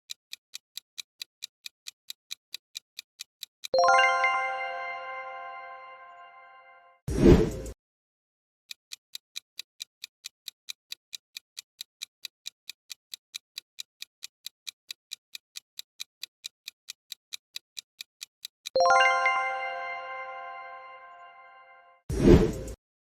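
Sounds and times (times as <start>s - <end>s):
countdown timer ticking: 3.7s - 6.7s, 18.6s - 21.6s
bright chime: 3.8s - 7.0s, 18.8s - 22.0s.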